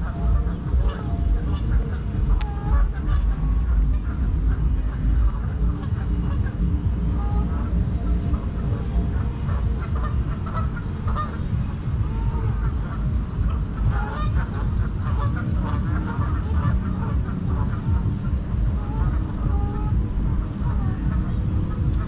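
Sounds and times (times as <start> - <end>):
flock of birds calling: 0.0 - 22.0
low rumble: 0.0 - 22.0.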